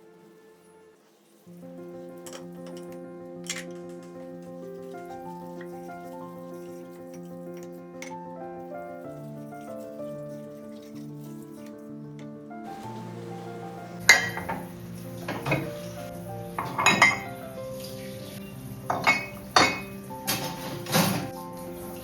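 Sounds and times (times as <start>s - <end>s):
soft background music: 0.0s - 22.0s
dishes and cutlery clinking: 2.1s - 8.4s, 14.1s - 17.5s, 18.9s - 21.4s.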